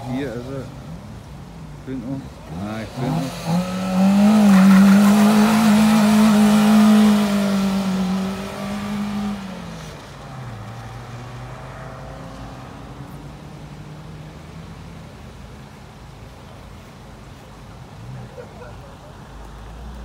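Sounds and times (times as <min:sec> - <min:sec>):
car engine revving: 0:01.7 - 0:14.4.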